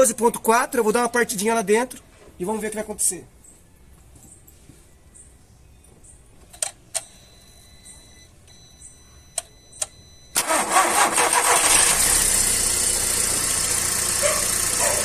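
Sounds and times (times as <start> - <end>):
car engine cranking and idling: 10.3 - 15.0.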